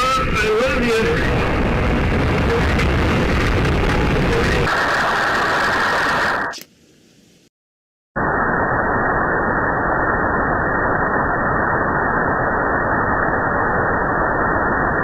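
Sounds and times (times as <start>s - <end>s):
airliner cockpit rushing noise: 0.0s - 6.6s.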